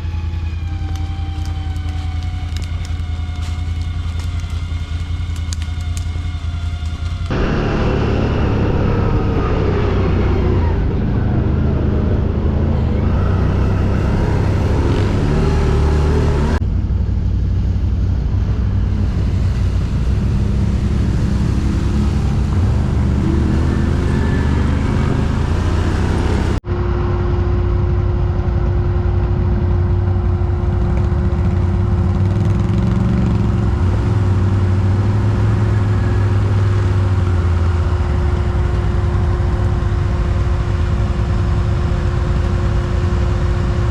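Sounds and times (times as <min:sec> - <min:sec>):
steady hum: 0:03.2 - 0:13.2
quad bike engines revving: 0:06.8 - 0:16.6, 0:18.2 - 0:26.6, 0:30.1 - 0:43.9.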